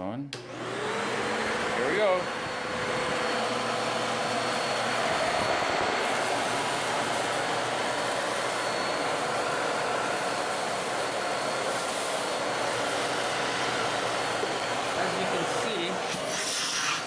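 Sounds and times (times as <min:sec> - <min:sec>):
upright vacuum running: 0:00.4 - 0:17.0
brush roll scrubbing floor: 0:03.6 - 0:17.0.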